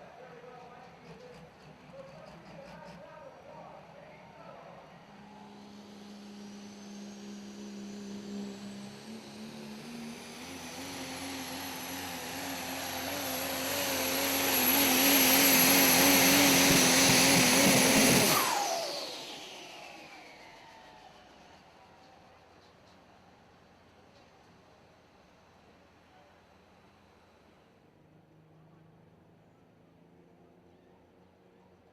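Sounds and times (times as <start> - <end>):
diesel truck engine at full throttle: 4.8 - 21.5
high turbo whistle: 5.0 - 21.6.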